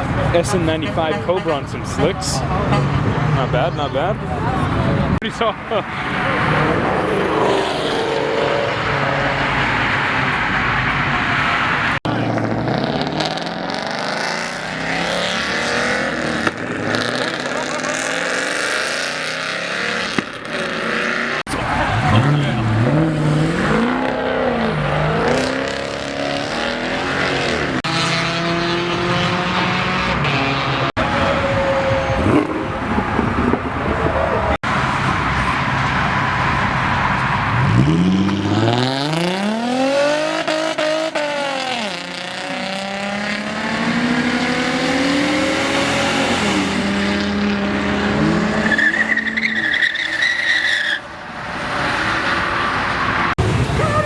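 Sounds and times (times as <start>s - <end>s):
car engines revving: 0.0s - 54.0s
tyre squeal: 48.5s - 51.1s.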